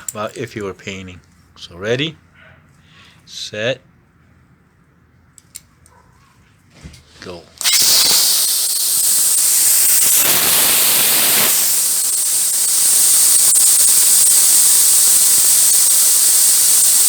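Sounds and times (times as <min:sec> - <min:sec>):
compressed air hissing from hose: 0:07.6 - 0:17.0.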